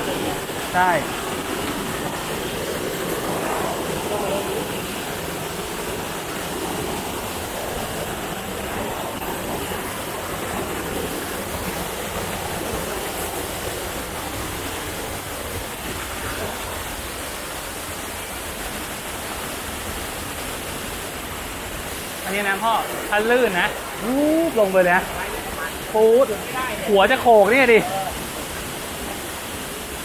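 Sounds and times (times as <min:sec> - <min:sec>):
waterfall rushing water: 0:00.0 - 0:30.0.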